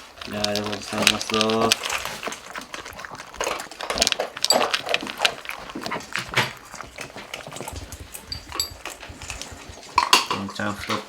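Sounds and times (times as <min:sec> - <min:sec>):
cats chewing and crunching food: 0:00.0 - 0:11.0
food bowl clinks: 0:08.2 - 0:10.7.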